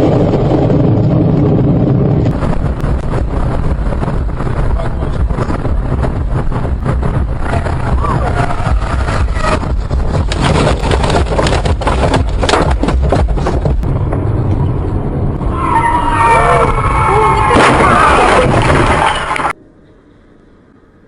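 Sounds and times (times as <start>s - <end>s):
vehicle rumble: 0.0s - 21.0s
sharp knocks: 9.5s - 13.8s.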